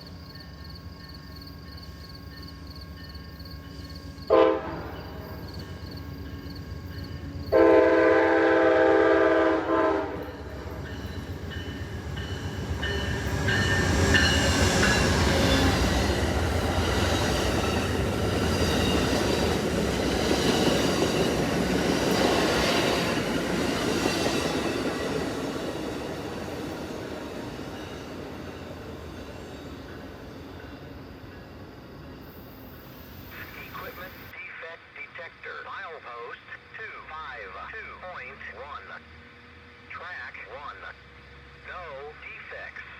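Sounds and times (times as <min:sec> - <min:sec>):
passenger train passing: 0:00.0 - 0:42.9
locomotive air horn blast: 0:04.3 - 0:05.0, 0:07.5 - 0:10.2.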